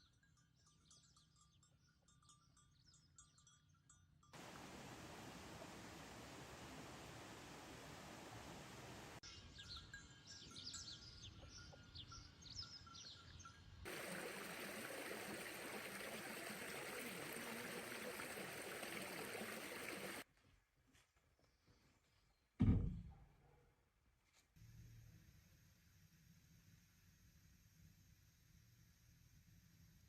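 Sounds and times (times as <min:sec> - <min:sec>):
running water rushing: 0:04.4 - 0:09.2, 0:13.9 - 0:20.2
small birds chirping: 0:09.2 - 0:20.2.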